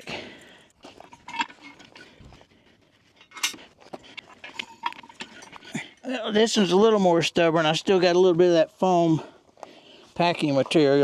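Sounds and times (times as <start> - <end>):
metal parts clinking: 1.0 - 1.9, 3.2 - 3.6, 4.5 - 5.8.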